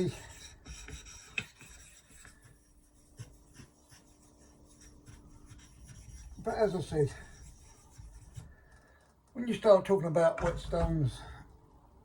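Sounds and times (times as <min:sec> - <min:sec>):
scraping on a whetstone: 0:00.0 - 0:08.7.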